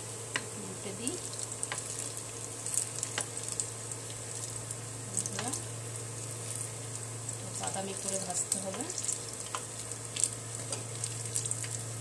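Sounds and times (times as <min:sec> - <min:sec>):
fritters sizzling in hot oil: 0:00.0 - 0:12.0.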